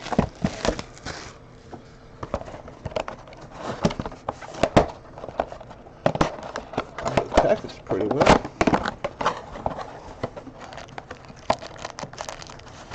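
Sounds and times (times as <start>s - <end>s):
plastic wrap and cardboard crinkling: 0.0s - 12.9s.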